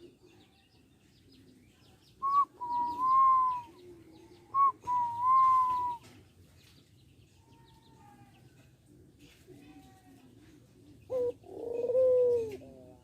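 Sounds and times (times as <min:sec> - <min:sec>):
dove cooing: 0:02.2 - 0:06.1, 0:09.0 - 0:13.0.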